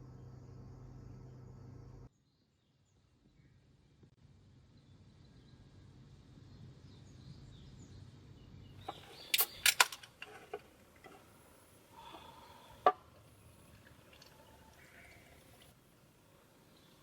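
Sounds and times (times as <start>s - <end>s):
faint outdoor ambience: 0.0s - 17.0s
objects clicking and knocking: 8.8s - 11.3s.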